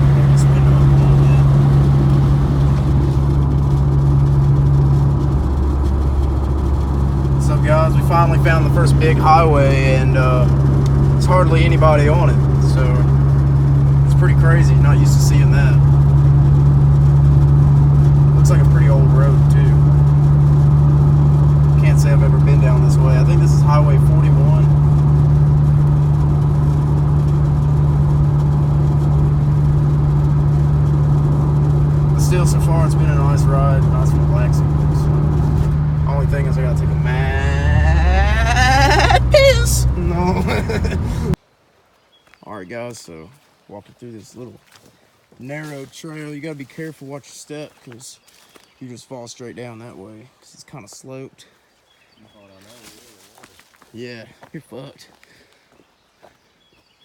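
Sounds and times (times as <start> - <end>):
car engine and road drone: 0.0 - 41.4.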